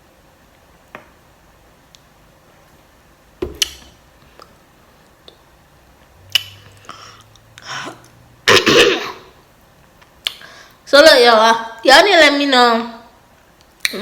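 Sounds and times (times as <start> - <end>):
wet mouth sounds: 6.2 - 8.9.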